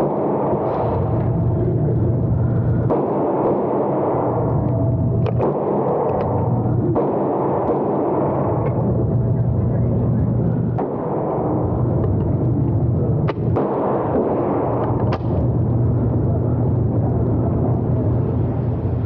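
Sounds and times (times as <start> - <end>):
steady low rumble: 0.0 - 19.0
sharp gunshot cracks: 2.9 - 4.2, 7.0 - 8.3, 13.3 - 15.4.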